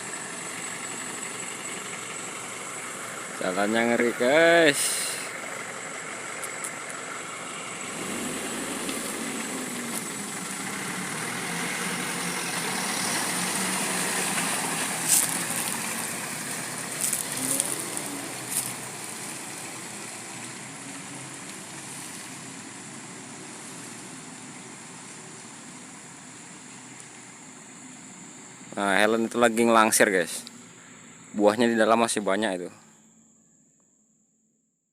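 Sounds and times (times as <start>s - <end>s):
truck engine revving: 0.0s - 27.4s.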